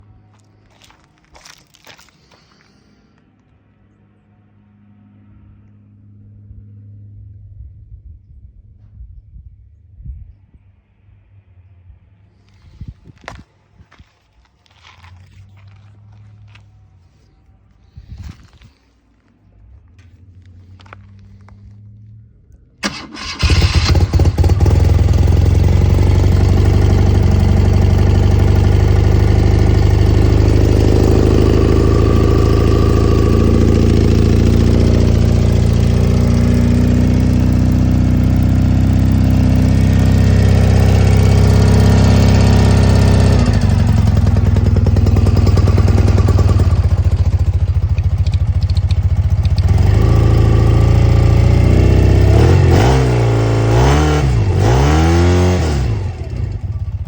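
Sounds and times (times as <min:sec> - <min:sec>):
motorcycle engine starting and idling: 0:22.8 - 0:57.0.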